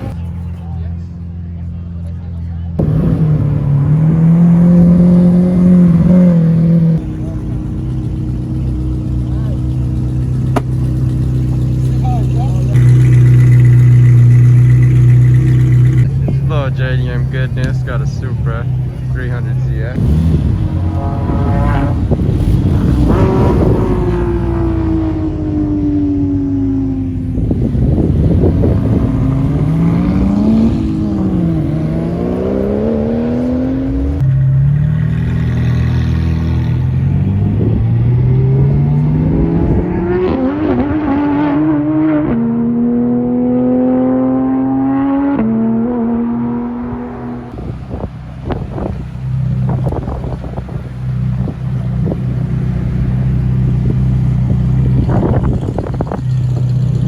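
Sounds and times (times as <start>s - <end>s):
sports car engine revving: 2.7s - 57.0s
engine pops: 10.1s - 19.6s.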